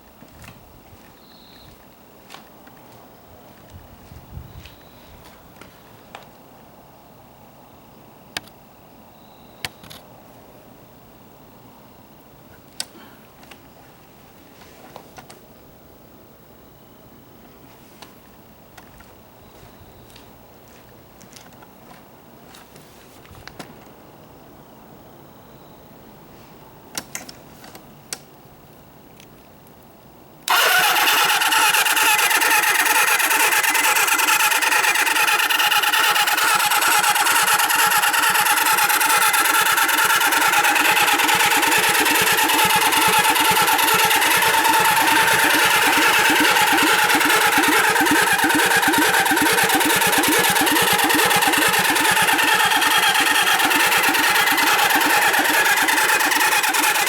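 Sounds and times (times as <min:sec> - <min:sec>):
motorcycle engine cranking: 0:30.5 - 0:57.0
starter clicks: 0:30.5 - 0:57.0.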